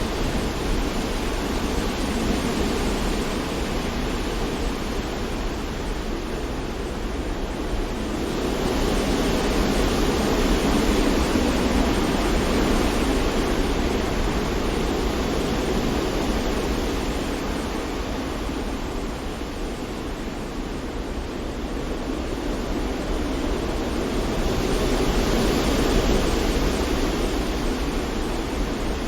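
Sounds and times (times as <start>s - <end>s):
wind: 0.0s - 29.0s.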